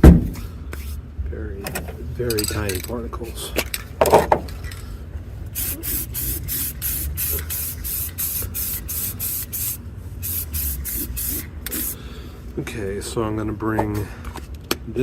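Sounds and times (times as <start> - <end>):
spray can hissing in bursts: 5.5 - 12.0.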